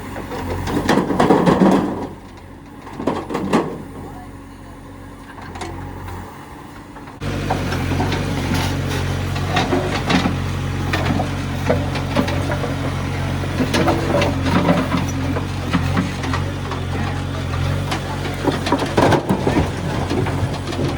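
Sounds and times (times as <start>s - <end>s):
heavy diesel engine running: 0.0s - 20.9s
sharp knocks and clatters: 13.6s - 20.9s.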